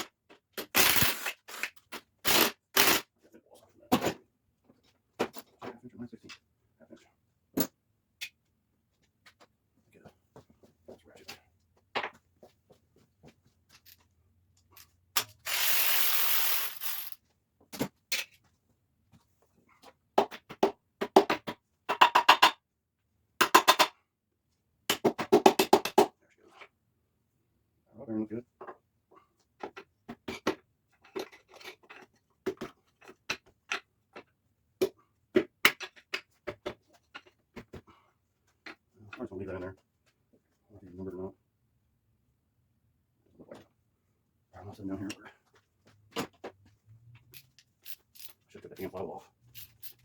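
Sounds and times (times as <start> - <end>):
hand tools and engine parts clinking: 13.7 - 17.2, 47.2 - 50.0.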